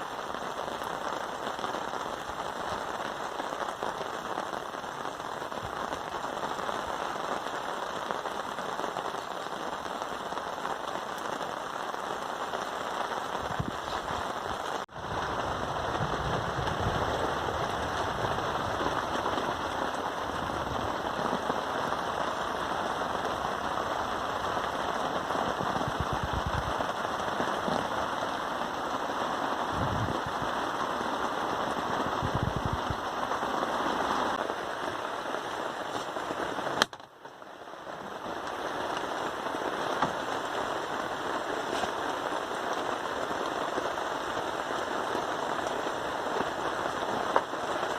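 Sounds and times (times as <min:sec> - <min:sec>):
rain pattering: 0:00.0 - 0:47.9
wind gusting on microphone: 0:13.4 - 0:22.2, 0:25.2 - 0:28.0, 0:29.6 - 0:30.8, 0:31.5 - 0:33.4.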